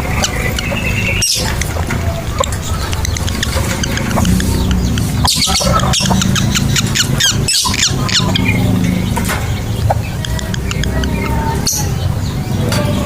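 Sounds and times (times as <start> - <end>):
lovebirds chirping: 0.0 - 13.0
low hum: 0.0 - 13.0.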